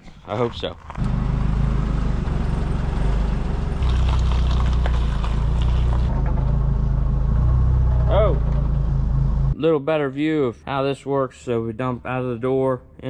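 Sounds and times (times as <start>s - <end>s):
engine running: 0.4s - 9.6s.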